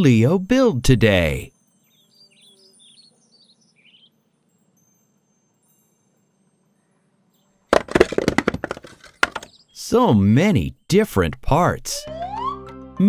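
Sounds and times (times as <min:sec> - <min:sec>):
faint high bird chirps: 0:01.6 - 0:07.7.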